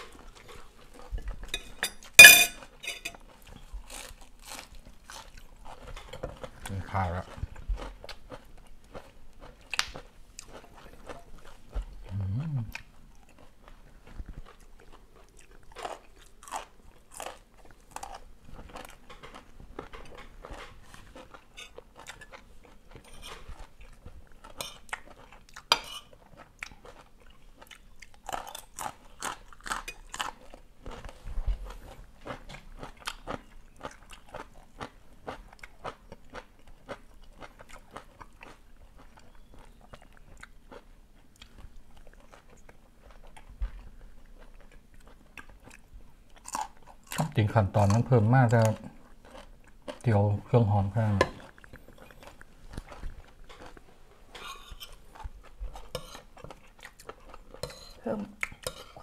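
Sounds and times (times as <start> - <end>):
person chewing and crunching: 0.0 - 59.0
low hum of voice: 12.1 - 12.8.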